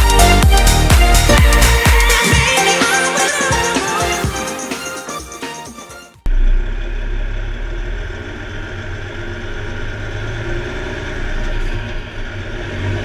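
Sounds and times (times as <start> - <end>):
music: 0.0 - 6.3
road noise: 6.3 - 13.0.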